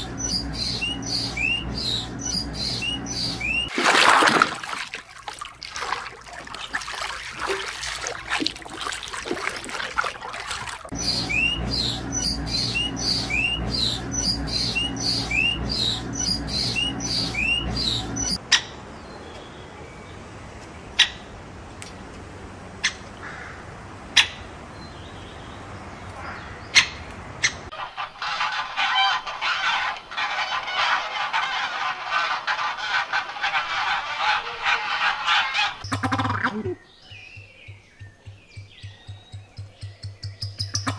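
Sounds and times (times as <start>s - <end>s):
birds chirping: 0.0s - 21.3s, 32.6s - 40.9s.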